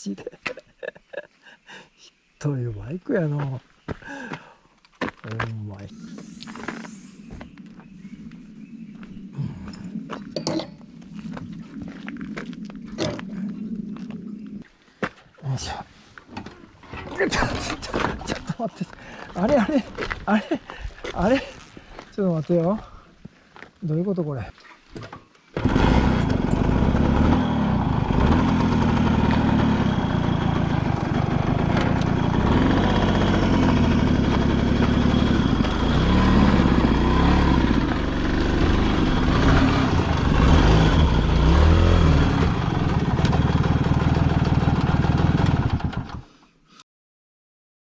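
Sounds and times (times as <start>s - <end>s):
two-stroke motorcycle engine revving: 25.6s - 46.2s.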